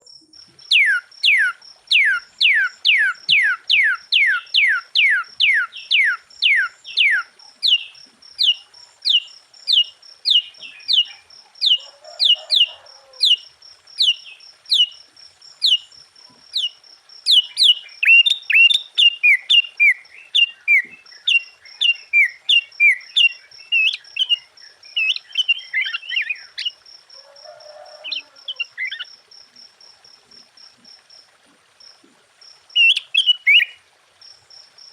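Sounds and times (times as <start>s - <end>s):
bird singing whistled notes: 0.1s - 12.7s, 14.0s - 15.0s, 15.6s - 15.9s, 16.5s - 26.8s, 32.8s - 33.8s.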